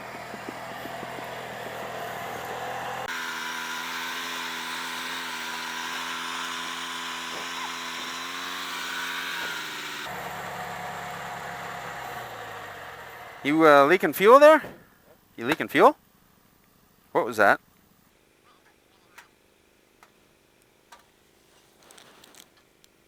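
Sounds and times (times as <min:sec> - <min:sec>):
small tractor engine running: 0:00.0 - 0:13.5.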